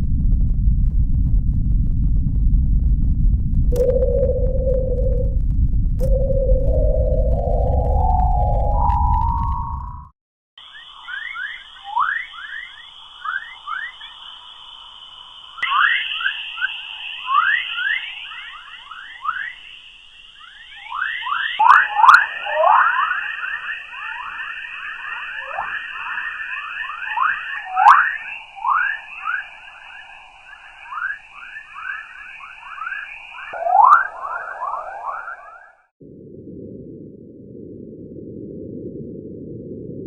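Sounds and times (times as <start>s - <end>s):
steady high whine: 0.0s - 40.0s
whistling chirps sweeping in pitch: 10.6s - 35.9s.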